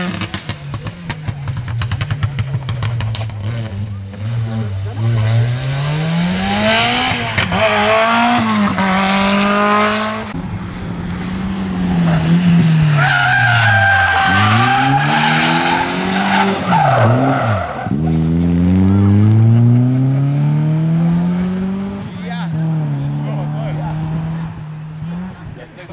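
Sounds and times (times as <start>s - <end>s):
rally car engine revving: 0.0s - 25.9s
tyre squeal: 12.9s - 18.0s.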